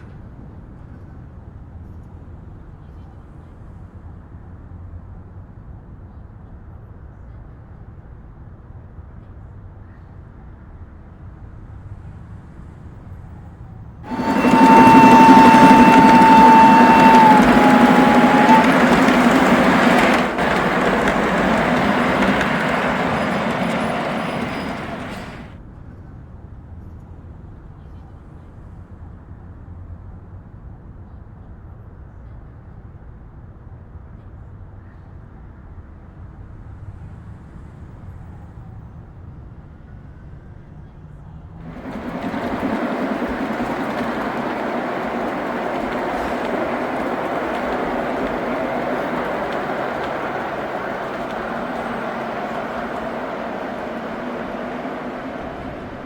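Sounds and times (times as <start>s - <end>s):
model train wheels rolling on track: 14.1s - 25.5s, 41.7s - 56.0s.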